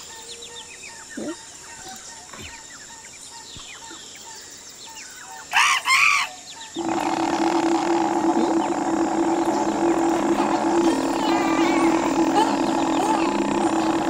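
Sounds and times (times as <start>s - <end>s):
small birds chirping: 0.0s - 14.0s
loud rising and falling bird calls: 5.4s - 14.0s
steady buzzing hum: 6.7s - 14.0s.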